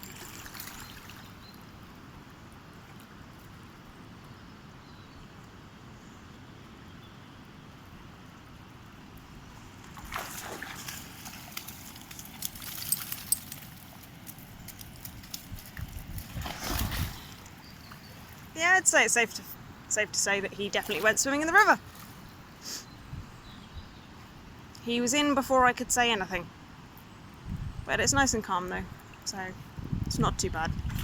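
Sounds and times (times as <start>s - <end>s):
dog splashing in water: 9.9s - 18.5s
river flowing: 16.4s - 22.9s.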